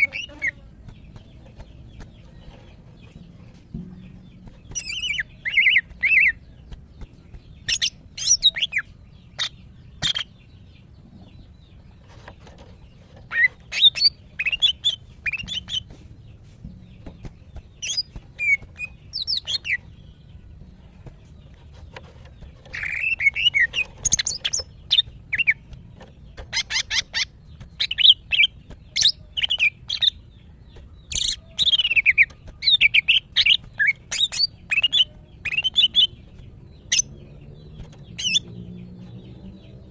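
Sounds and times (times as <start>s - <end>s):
bird chirping and whistling: 7.6s - 8.8s, 22.8s - 25.6s, 38.2s - 38.5s.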